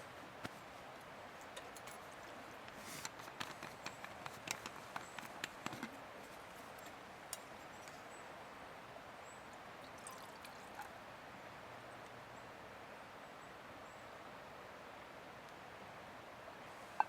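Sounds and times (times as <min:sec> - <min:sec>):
river water flowing: 0:06.0 - 0:17.0.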